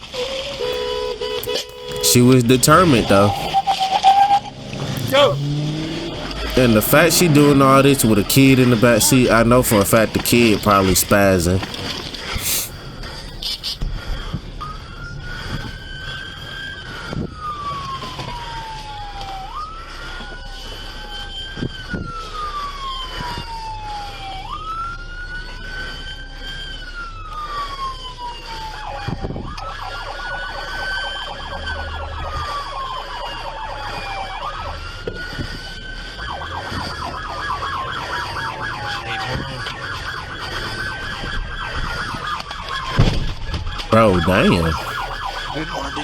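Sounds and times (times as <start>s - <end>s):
police car siren wailing: 0.0s - 13.7s, 14.5s - 43.0s, 43.9s - 46.0s.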